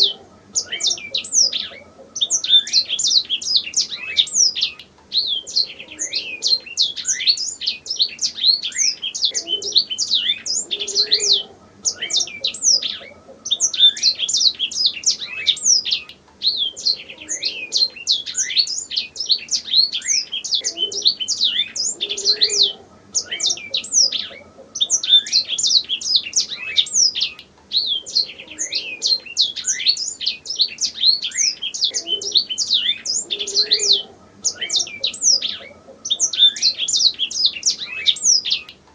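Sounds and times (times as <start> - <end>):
canary singing chirps and trills: 0.0 - 38.9.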